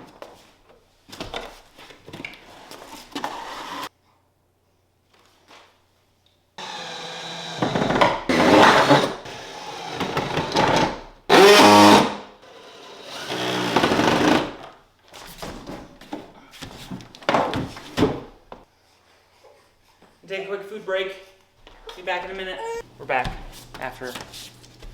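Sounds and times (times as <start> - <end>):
power drill running: 6.6 - 10.1, 13.0 - 14.4.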